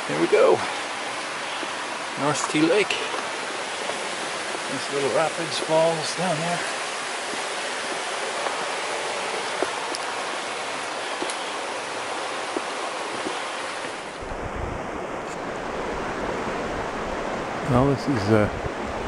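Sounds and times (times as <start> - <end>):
small rapids rushing: 0.0 - 19.0
low wind rumble on microphone: 6.8 - 19.0.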